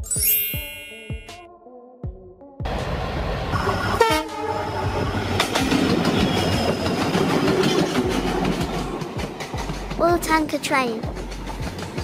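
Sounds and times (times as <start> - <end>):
freight train rumbling past: 2.7 - 12.0
wheels clacking over rail joints: 5.3 - 10.0.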